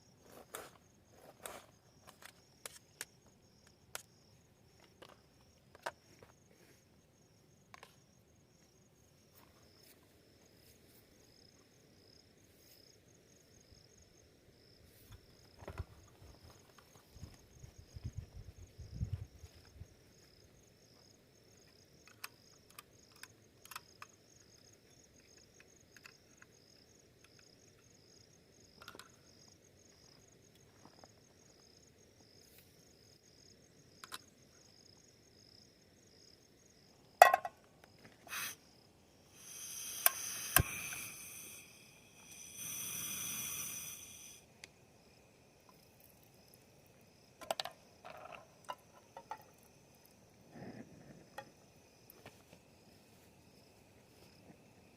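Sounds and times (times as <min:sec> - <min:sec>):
night insects trilling: 0:00.0 - 0:54.9
small clicks and knocks: 0:04.8 - 0:06.3, 0:22.0 - 0:27.9, 0:28.8 - 0:29.3, 0:34.0 - 0:34.3, 0:47.4 - 0:49.7.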